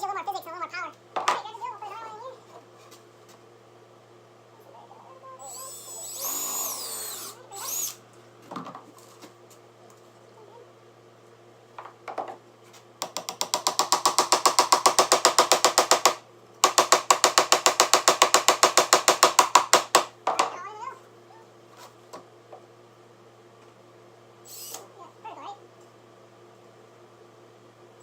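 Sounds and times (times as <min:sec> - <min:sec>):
drill rapid clicking pulses: 0:05.4 - 0:08.0, 0:13.0 - 0:20.1, 0:24.5 - 0:24.8
drill whirring: 0:05.4 - 0:08.0, 0:24.4 - 0:24.9.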